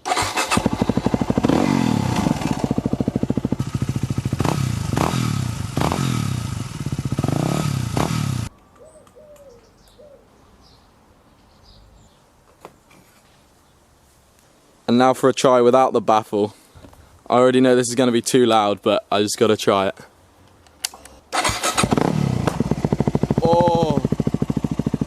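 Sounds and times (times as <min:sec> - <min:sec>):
motorcycle engine idling and revving: 0:00.0 - 0:08.5, 0:21.4 - 0:25.0.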